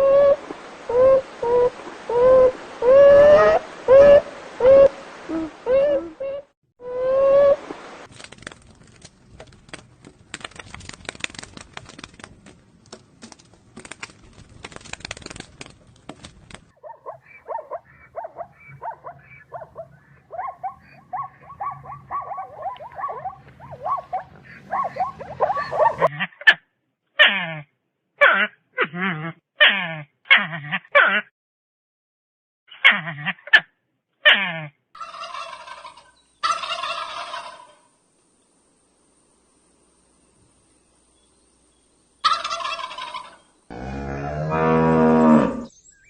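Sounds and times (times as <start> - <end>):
crackling rustling clicks: 8.0 - 16.7
dog yelping: 16.8 - 26.1
dog yipping: 16.8 - 26.1.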